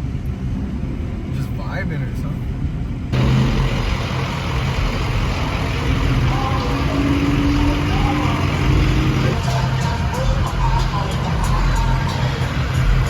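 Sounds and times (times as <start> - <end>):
vehicle engine humming: 0.0 - 13.0
faint voices: 6.0 - 13.0.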